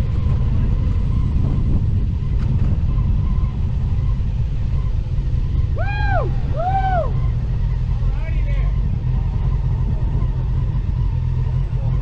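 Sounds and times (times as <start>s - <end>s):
motorcycle engine rumble: 0.0s - 12.0s
high rising and falling calls: 5.7s - 7.5s.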